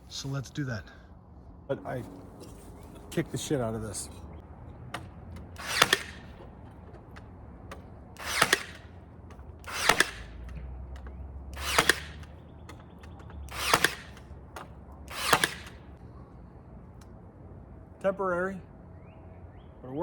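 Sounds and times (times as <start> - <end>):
power nailer shots: 4.7 - 16.0.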